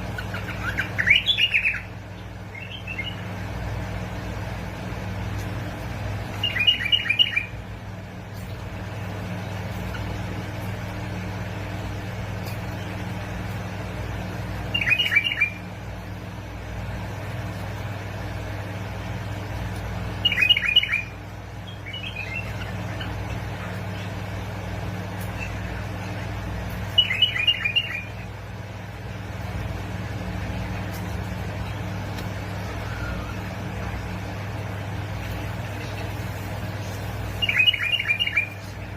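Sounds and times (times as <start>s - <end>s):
bird singing bubbling phrases: 0.0s - 3.5s, 6.2s - 7.7s, 14.2s - 16.3s, 20.0s - 29.3s, 35.0s - 38.9s
steady low hum: 0.0s - 38.9s.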